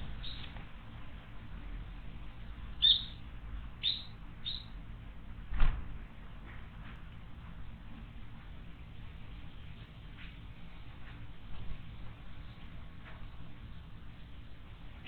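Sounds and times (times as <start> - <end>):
bird short sharp calls: 2.8 - 3.2.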